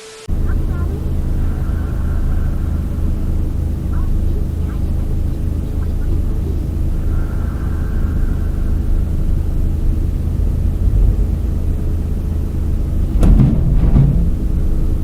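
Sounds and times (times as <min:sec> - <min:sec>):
vehicle engine rumbling: 0:00.0 - 0:15.0
sharp knock: 0:13.1 - 0:15.0.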